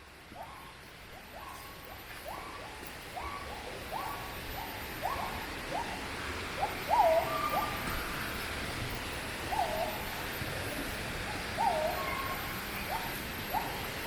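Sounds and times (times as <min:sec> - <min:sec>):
steady hiss: 0:00.0 - 0:14.0
wild animals calling: 0:02.3 - 0:08.2, 0:09.5 - 0:14.0.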